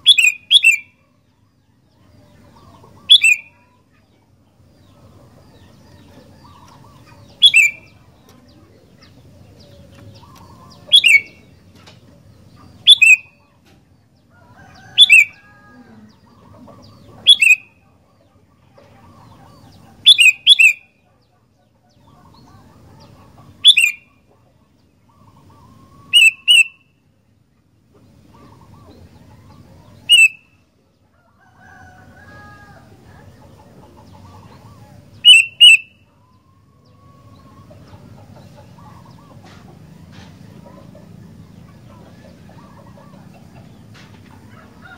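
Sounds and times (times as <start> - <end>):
bulbul giving sharp calls: 0.0 - 1.0, 2.5 - 3.8, 6.4 - 8.2, 8.9 - 11.6, 12.7 - 13.6, 14.7 - 15.4, 16.1 - 17.9, 19.4 - 21.0, 23.0 - 24.3, 25.1 - 26.9, 30.0 - 30.6, 34.0 - 36.2.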